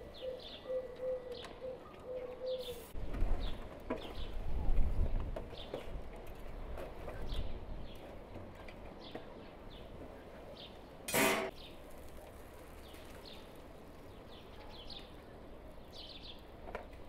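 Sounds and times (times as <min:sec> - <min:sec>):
small songbirds chirping: 0:00.0 - 0:05.9, 0:12.6 - 0:17.0.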